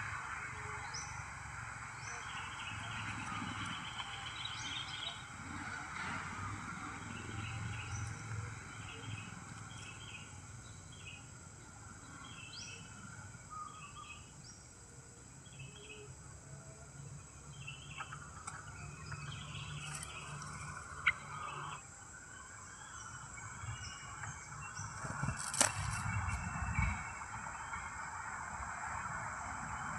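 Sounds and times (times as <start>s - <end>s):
outdoor background hiss: 0.0s - 29.9s
small birds chirping: 17.2s - 21.8s.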